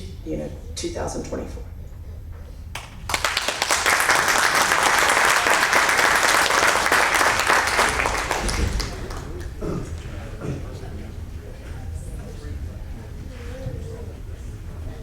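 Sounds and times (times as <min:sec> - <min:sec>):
audience applauding: 0:02.7 - 0:10.3.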